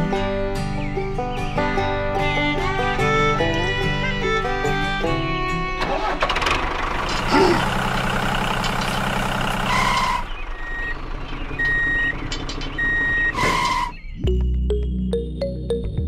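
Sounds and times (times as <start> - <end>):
heavy vehicle engine running: 0.0 - 14.5
reversing alarm beeping: 9.6 - 14.4.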